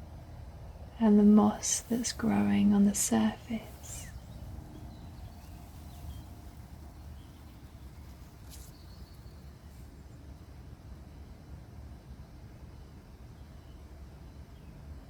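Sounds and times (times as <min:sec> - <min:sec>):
steady low rumble: 0:00.0 - 0:11.1
faint bird chirps: 0:00.7 - 0:10.3.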